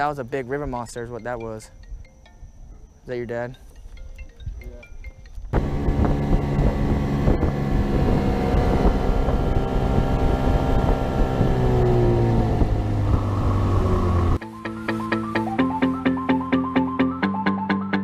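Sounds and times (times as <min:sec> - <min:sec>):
wind buffeting microphone: 0:03.8 - 0:14.4
outboard motor running: 0:05.6 - 0:14.4.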